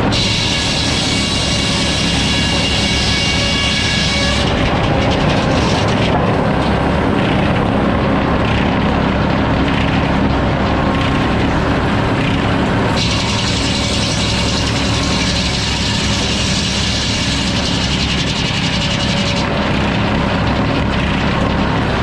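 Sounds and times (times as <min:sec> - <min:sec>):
high-pitched saw whine: 0:00.0 - 0:07.2, 0:12.9 - 0:20.7
sawmill engine running: 0:00.0 - 0:22.0.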